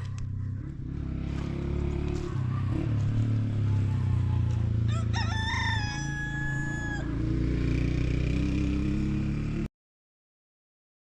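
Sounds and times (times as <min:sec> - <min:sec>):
low engine-like drone: 0:00.0 - 0:09.5
rooster crowing: 0:02.3 - 0:07.3.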